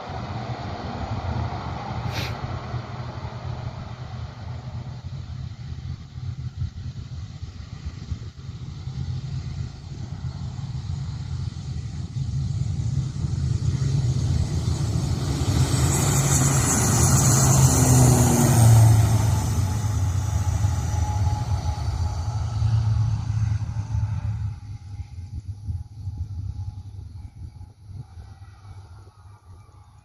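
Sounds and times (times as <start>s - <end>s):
airliner engine rushing: 0.0s - 30.0s
steady low rumble: 0.0s - 30.0s.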